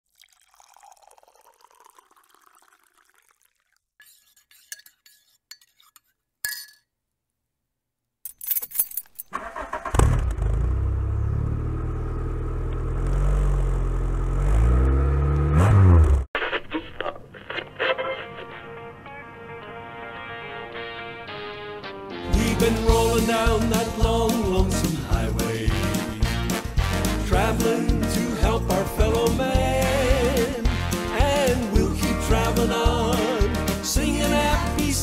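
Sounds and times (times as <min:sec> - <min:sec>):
keys jangling: 0:08.3 - 0:09.3
car engine cranking and running: 0:09.3 - 0:16.2.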